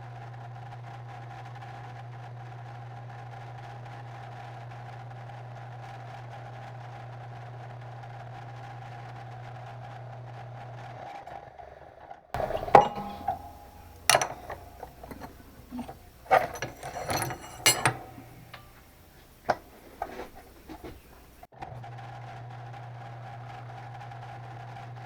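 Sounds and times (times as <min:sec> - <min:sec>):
hard objects knocking and clinking: 0:12.4 - 0:21.4
steady hum: 0:12.4 - 0:21.5.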